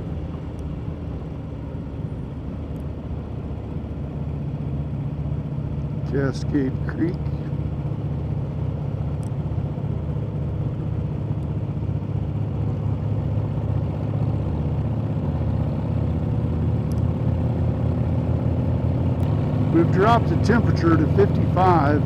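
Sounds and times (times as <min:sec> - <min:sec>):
motorcycle engine cruising: 0:05.9 - 0:22.0.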